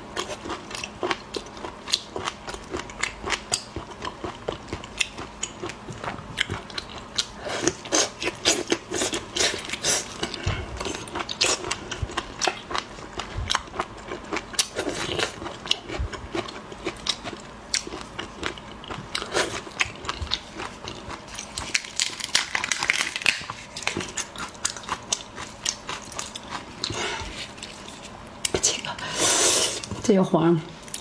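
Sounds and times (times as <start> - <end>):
prawn shell cracking: 21.6 - 24.0.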